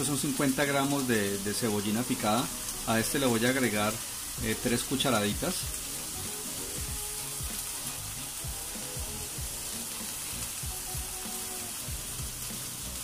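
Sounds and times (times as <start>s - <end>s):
onion sizzling in oil: 0.0s - 13.0s.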